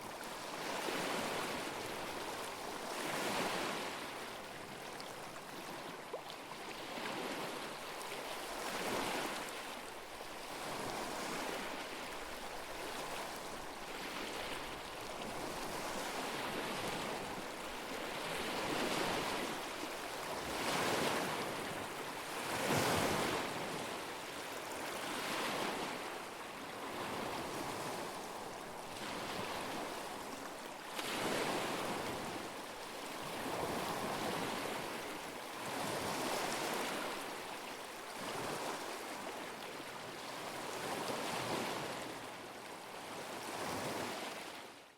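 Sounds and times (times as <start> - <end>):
lake waves washing onto shore: 10.4 - 42.2.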